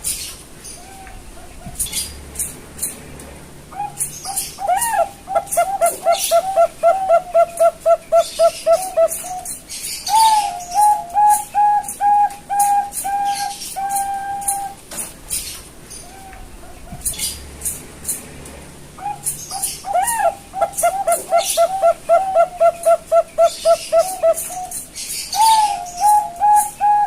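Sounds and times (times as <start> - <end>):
zebra dove cooing: 3.7 - 14.8, 19.0 - 27.0.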